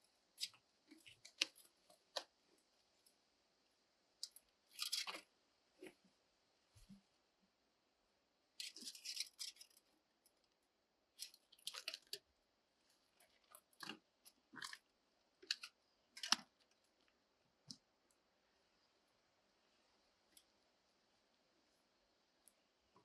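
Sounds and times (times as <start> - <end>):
crisp crackles and clicks: 0.4 - 2.4, 4.2 - 6.0, 8.6 - 18.2.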